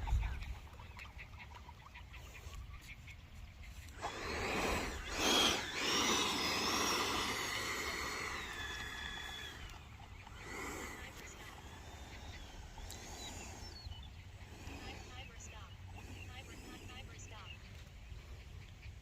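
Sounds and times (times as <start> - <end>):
electric ducted fan whine: 3.9 - 17.7.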